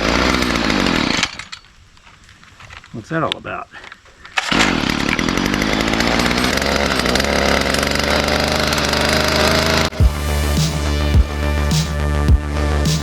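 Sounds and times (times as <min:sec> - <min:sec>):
string trimmer engine running: 0:00.0 - 0:01.4, 0:04.5 - 0:11.8
electronic music with bass beat: 0:10.0 - 0:13.0.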